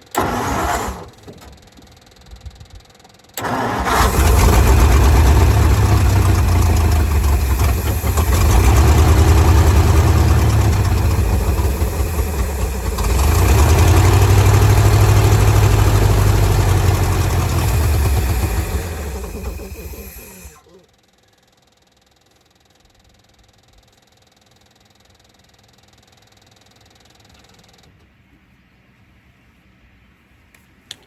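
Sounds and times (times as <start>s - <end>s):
truck engine starting and running: 0.0s - 2.0s, 3.4s - 20.6s.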